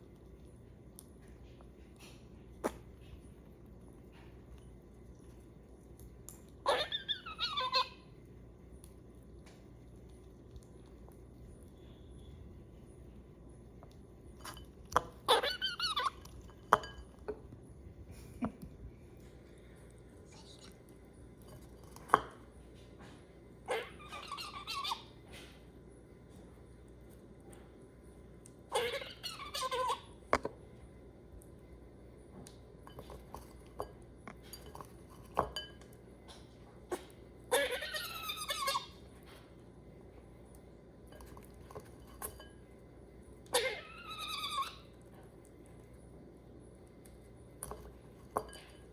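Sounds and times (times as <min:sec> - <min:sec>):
small clicks of squirrel eating: 0:00.0 - 0:06.7, 0:08.1 - 0:15.1, 0:24.8 - 0:28.7, 0:29.6 - 0:31.7, 0:32.3 - 0:37.2
squirrel warbling chatter: 0:06.6 - 0:08.0, 0:15.2 - 0:16.2, 0:23.7 - 0:25.1, 0:28.7 - 0:30.1, 0:37.5 - 0:39.0, 0:43.5 - 0:44.9.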